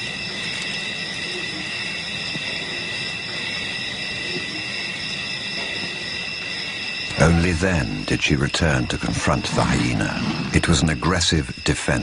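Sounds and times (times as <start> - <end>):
night insects chorus: 0.0 - 12.0.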